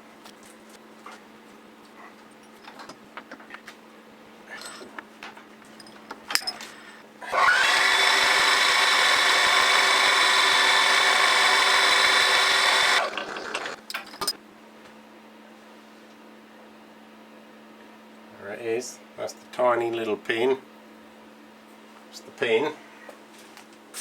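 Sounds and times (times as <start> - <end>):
power tool motor whining: 7.2 - 13.9.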